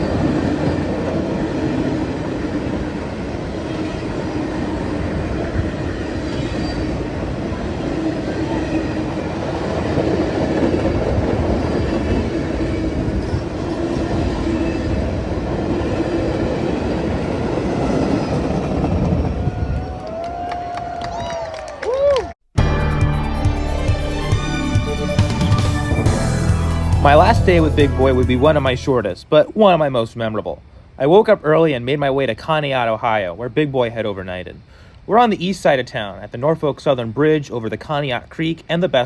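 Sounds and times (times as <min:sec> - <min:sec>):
train wheels rumbling on rail: 0:00.0 - 0:20.5.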